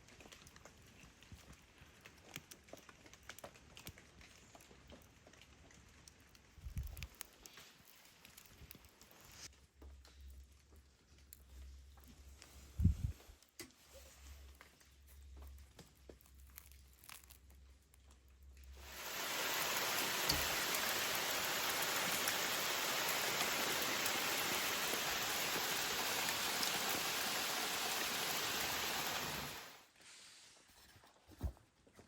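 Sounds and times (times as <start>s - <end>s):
steady rain: 18.8s - 29.9s.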